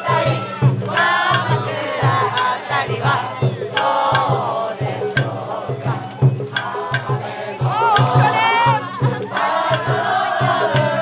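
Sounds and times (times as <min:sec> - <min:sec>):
taiko drums beating: 0:00.0 - 0:11.0
wavering flute or chanting voices: 0:00.0 - 0:11.0.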